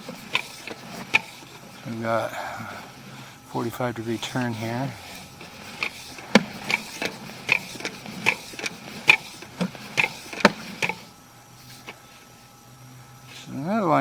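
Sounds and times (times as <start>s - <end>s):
cable clicking and knocking: 0.0s - 1.6s, 5.4s - 11.0s.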